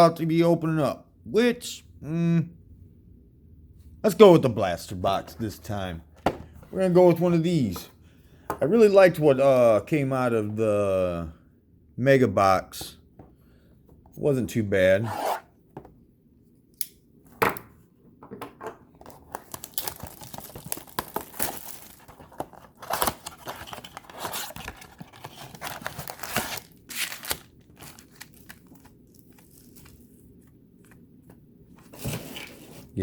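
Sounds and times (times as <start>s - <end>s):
wrapper crinkling: 19.1s - 30.4s
cardboard ripping: 19.5s - 28.8s.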